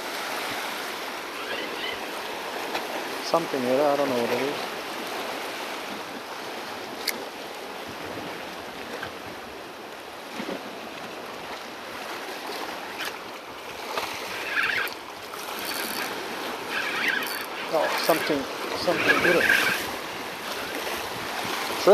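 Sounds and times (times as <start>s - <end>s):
water washing against rocks: 12.3s - 21.9s
wind on microphone: 14.2s - 21.9s.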